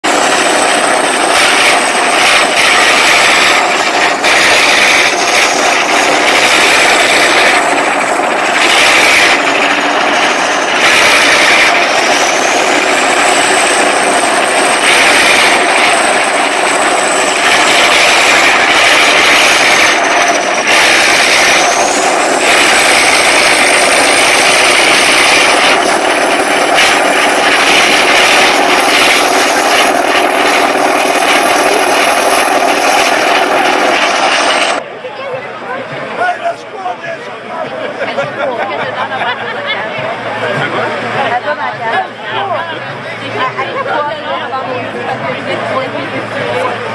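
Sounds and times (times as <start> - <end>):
loud motor with whine: 0.0 - 34.9, 38.2 - 46.9.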